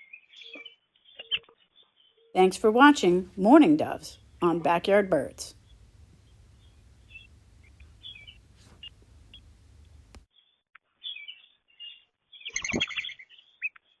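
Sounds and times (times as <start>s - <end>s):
small birds chirping: 5.5s - 10.2s.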